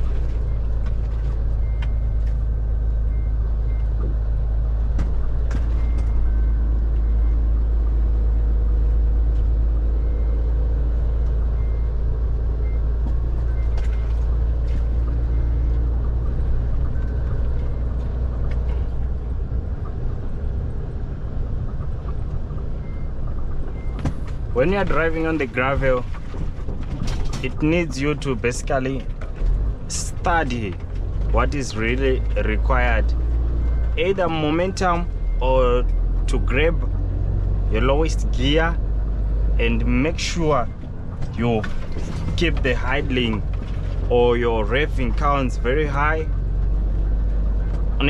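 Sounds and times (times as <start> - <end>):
truck diesel engine rumble: 0.0 - 48.0
cab knocks and rattles: 23.5 - 31.6, 40.7 - 44.1.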